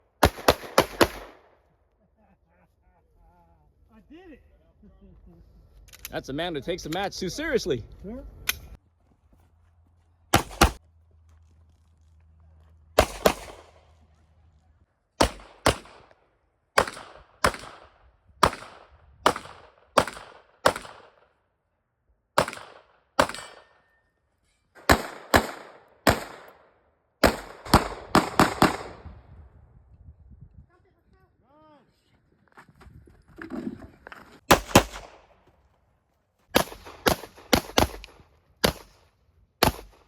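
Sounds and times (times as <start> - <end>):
handgun shots: 10.3 - 10.8, 13.0 - 13.8, 15.2 - 16.1, 16.8 - 21.2, 22.4 - 23.8, 24.8 - 26.6, 27.2 - 29.0, 34.5 - 35.2, 36.6 - 39.0, 39.6 - 40.0.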